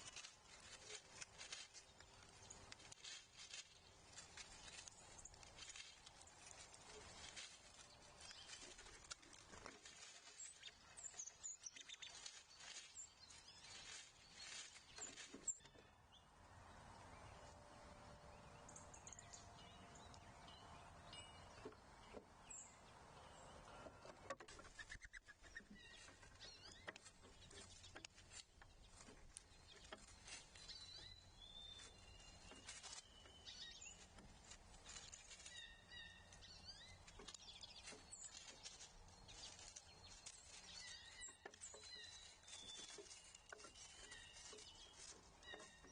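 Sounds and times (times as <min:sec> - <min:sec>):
songbird chirps: 0:00.0 - 0:45.9
small taps and scratches: 0:23.9 - 0:31.0, 0:37.0 - 0:45.9.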